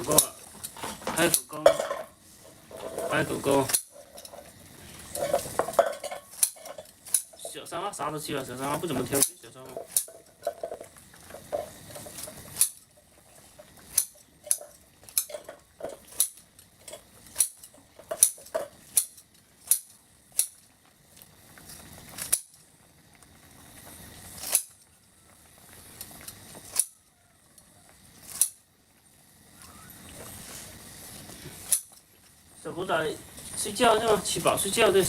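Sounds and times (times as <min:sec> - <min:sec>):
utensils clinking against dishes: 0:00.0 - 0:07.8, 0:08.5 - 0:12.8, 0:13.5 - 0:20.5.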